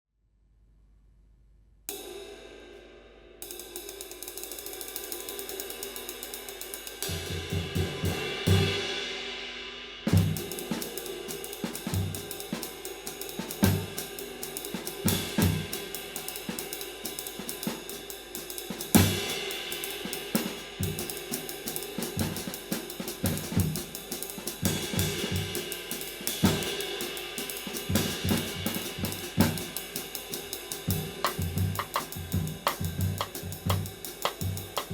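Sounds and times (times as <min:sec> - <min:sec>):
drums playing a groove: 0:04.0 - 0:09.0, 0:10.0 - 0:34.9
ride cymbal pattern: 0:23.8 - 0:34.9
bass drum hits: 0:31.3 - 0:34.9.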